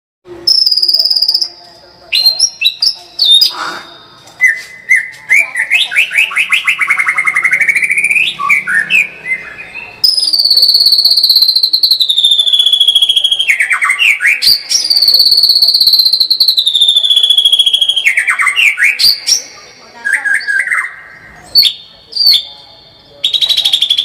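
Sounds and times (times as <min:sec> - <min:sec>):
songbird singing trills and whistles: 0:00.4 - 0:24.0
loud fast rattling bird trill: 0:00.5 - 0:04.1, 0:10.0 - 0:22.4, 0:23.2 - 0:24.0.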